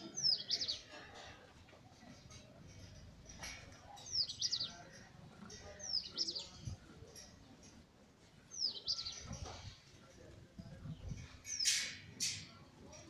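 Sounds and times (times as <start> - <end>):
bird calling and chirping: 0.0 - 0.9, 4.0 - 4.9, 8.5 - 9.3.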